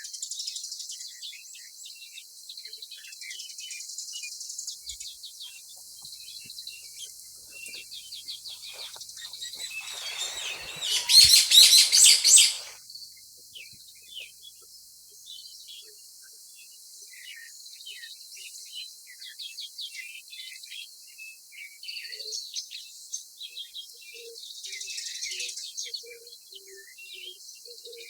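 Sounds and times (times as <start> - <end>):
small birds chirping: 4.8 - 12.8
short lower-pitched bird notes: 9.7 - 12.7.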